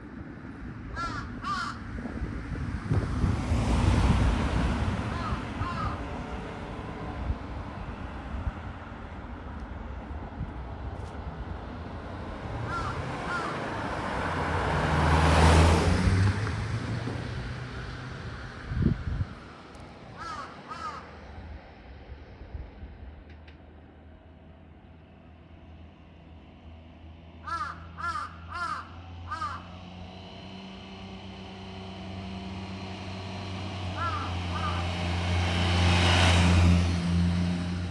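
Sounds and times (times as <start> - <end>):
car passing: 0.0 - 23.2, 24.2 - 37.9
crow cawing: 0.9 - 1.8, 5.1 - 6.0, 12.7 - 13.8, 20.2 - 21.2, 27.4 - 29.8, 34.0 - 35.0.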